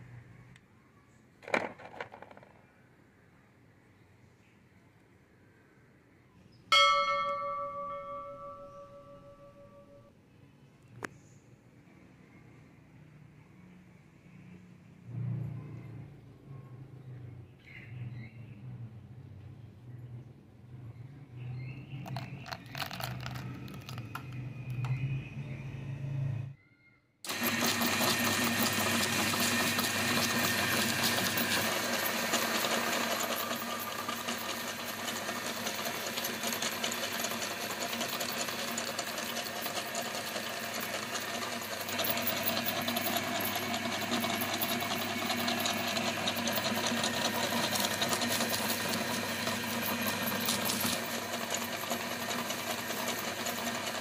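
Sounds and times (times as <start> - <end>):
electric meat grinder running: 27.3 - 54.0.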